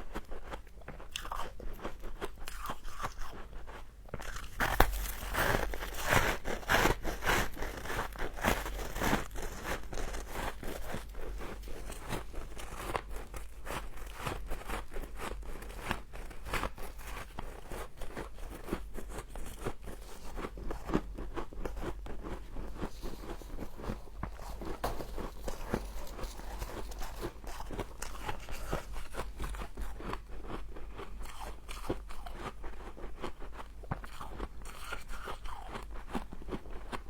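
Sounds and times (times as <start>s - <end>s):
frost being chewed crunching: 0.0s - 37.0s.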